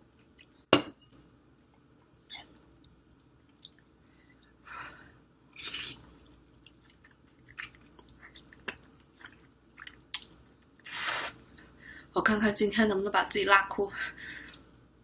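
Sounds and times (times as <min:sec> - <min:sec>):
wet chewing and slurping: 0:05.5 - 0:11.4.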